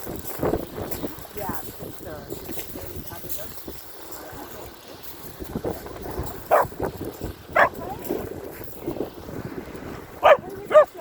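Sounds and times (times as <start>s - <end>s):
dog barking: 6.5s - 6.8s, 7.6s - 7.8s, 10.2s - 11.0s.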